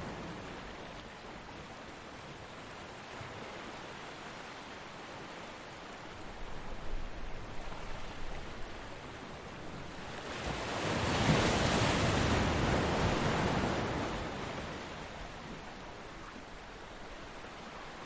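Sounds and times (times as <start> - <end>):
ocean waves breaking: 7.2 - 18.0.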